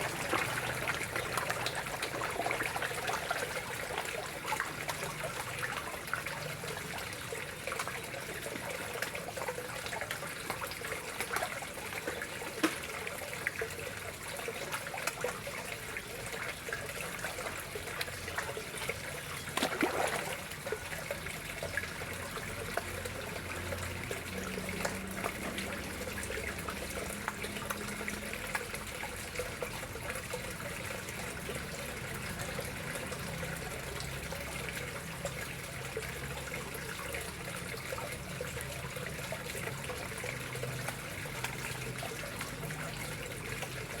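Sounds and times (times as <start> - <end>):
water trickling into pond: 0.0 - 44.0
water splash: 19.5 - 20.7.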